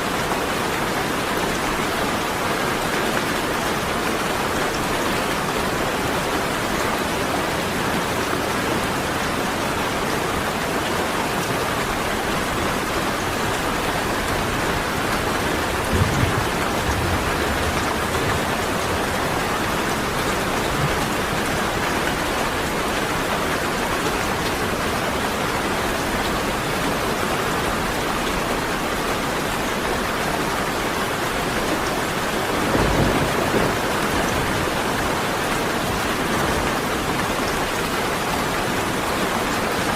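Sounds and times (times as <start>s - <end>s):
heavy rain falling: 0.0s - 39.9s
low thunder rumbles: 14.3s - 21.8s, 32.4s - 35.2s.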